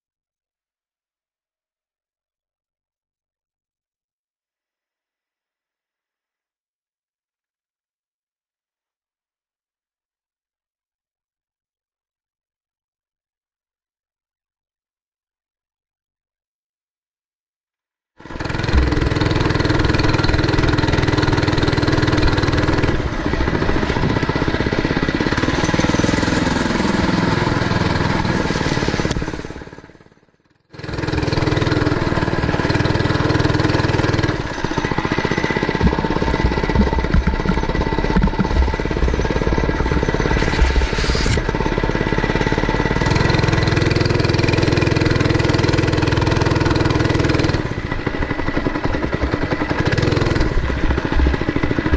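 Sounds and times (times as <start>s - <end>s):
mini bike engine running: 18.2s - 51.9s.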